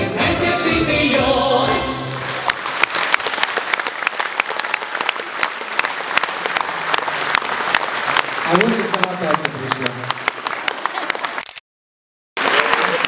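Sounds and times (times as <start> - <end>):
audience applauding: 2.0 - 11.5, 12.4 - 13.0.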